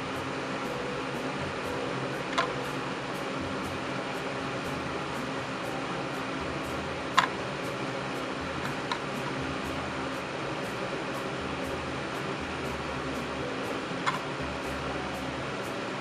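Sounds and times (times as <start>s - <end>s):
electric fan running: 0.0s - 16.0s
sharp click: 14.0s - 14.3s.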